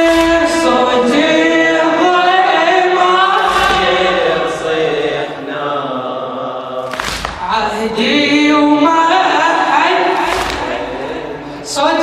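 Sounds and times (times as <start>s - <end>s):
men chanting in unison: 0.0s - 12.0s
dull thump: 3.4s - 4.6s.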